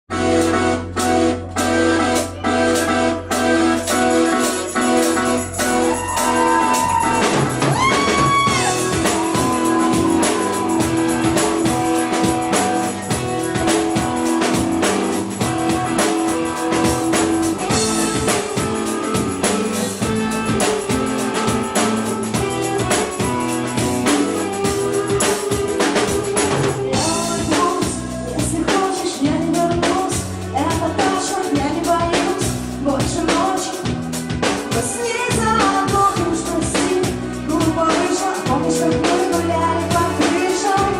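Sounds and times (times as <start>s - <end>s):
drum kit beat: 0.1s - 40.9s
electric guitar: 0.1s - 40.9s.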